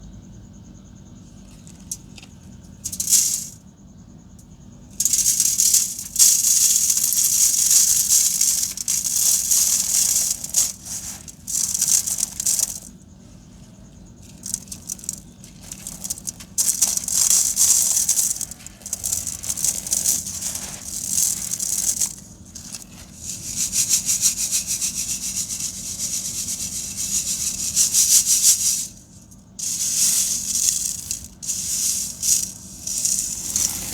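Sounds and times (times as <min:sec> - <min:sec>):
sand-cement chunks crumbling: 0:05.0 - 0:27.8, 0:29.6 - 0:33.9.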